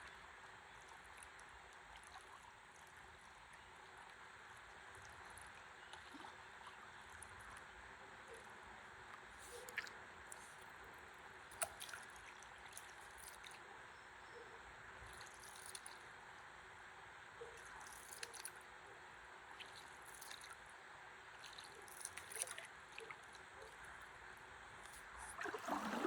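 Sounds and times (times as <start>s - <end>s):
water drips and splashes: 0.0s - 7.7s, 9.1s - 13.7s, 15.0s - 16.2s, 17.6s - 18.7s, 19.5s - 24.2s, 24.8s - 26.0s
water lapping: 0.0s - 16.1s, 19.5s - 26.0s.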